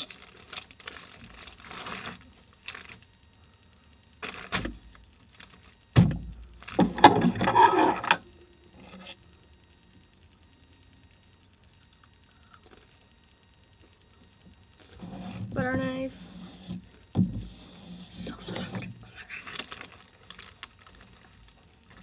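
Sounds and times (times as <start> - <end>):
rustling of kitchen items: 0.0 - 3.0.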